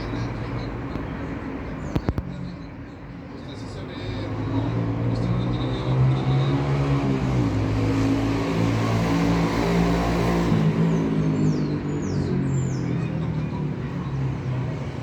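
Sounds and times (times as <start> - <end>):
road noise: 0.0 - 15.0
vehicle engine running: 3.6 - 7.7.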